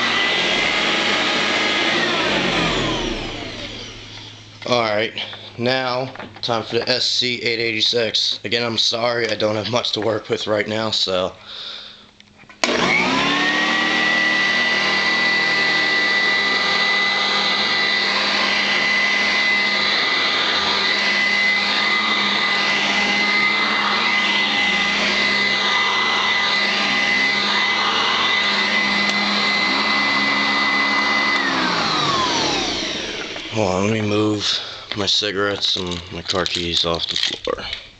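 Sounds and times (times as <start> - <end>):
vacuum cleaner motor whine: 0.0 - 5.9, 12.6 - 34.8.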